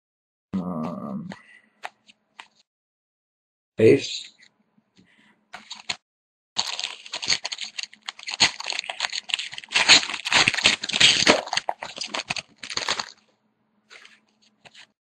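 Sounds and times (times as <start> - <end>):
cards rustling: 5.6 - 6.0, 6.6 - 13.2, 13.9 - 15.0
wrapper tearing and crinkling: 5.6 - 6.0, 6.6 - 13.2.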